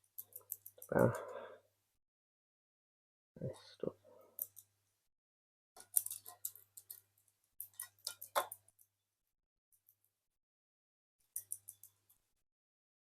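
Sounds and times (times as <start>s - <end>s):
plastic woodpecker toy clicking: 0.1s - 1.1s, 5.8s - 8.9s, 11.3s - 12.2s.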